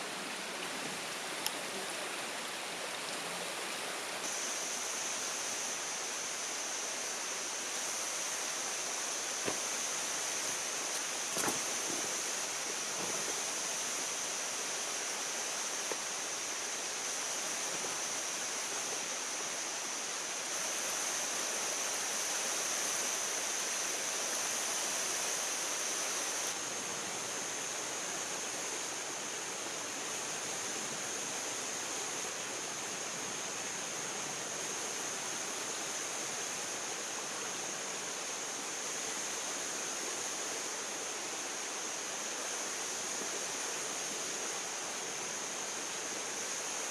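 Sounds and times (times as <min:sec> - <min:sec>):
high steady hissing tone: 0:00.0 - 0:46.9
rushing water-like noise: 0:00.0 - 0:46.9.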